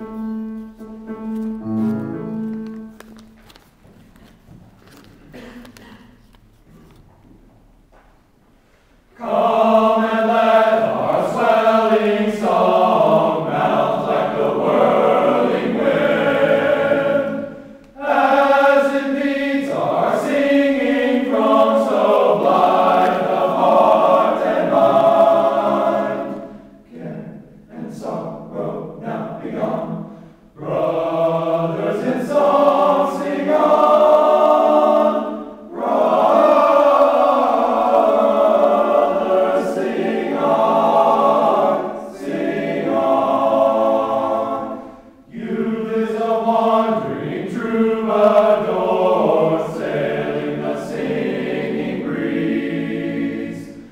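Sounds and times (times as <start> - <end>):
group singing a hymn: 9.1 - 53.9.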